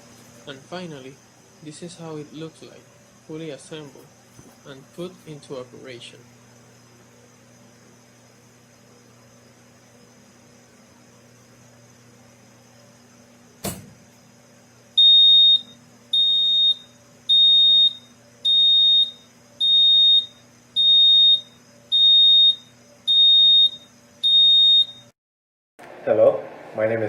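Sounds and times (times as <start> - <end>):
alarm buzzer beeping: 15.0 - 25.1.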